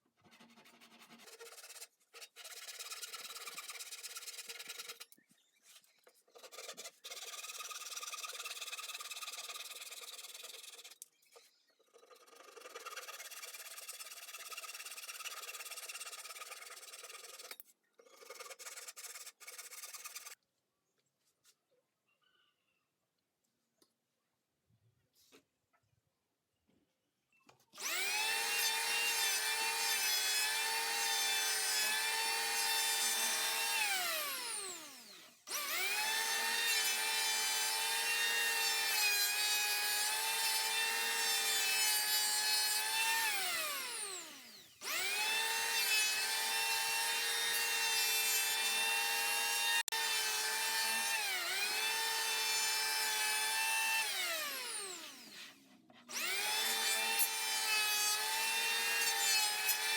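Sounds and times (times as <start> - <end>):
power tool cutting wood: 27.8 - 59.9.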